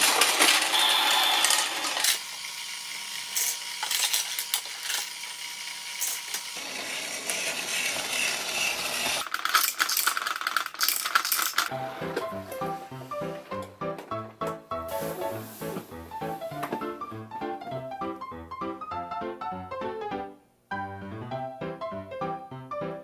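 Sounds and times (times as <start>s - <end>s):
plastic toy parts rattling: 0.0s - 2.2s, 3.0s - 6.6s, 9.0s - 11.7s.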